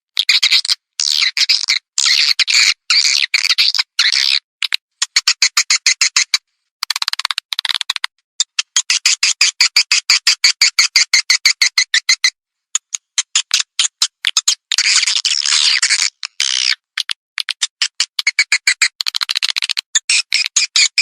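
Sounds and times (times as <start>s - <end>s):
rapid sharp bird clicks: 4.6s - 21.0s.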